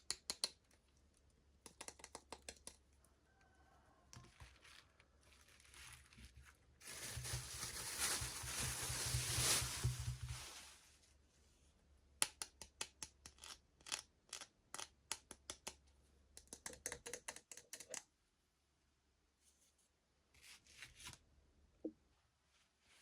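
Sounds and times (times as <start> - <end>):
hands handling plastic toys: 4.1 - 10.8.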